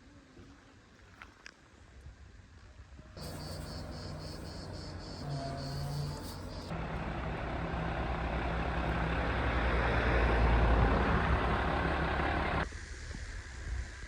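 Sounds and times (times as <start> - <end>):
road noise: 3.2 - 12.7
vehicle engine hum: 3.2 - 12.7.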